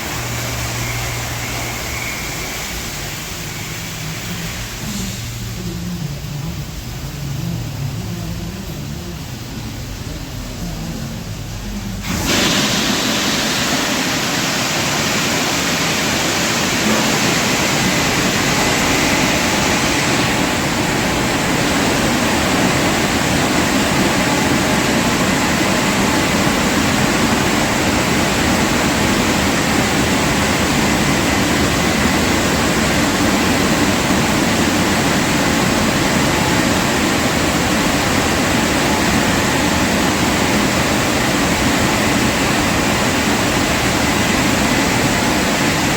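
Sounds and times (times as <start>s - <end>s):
faint steady whine: 0.0s - 12.2s
car wash rushing noise: 0.0s - 45.9s.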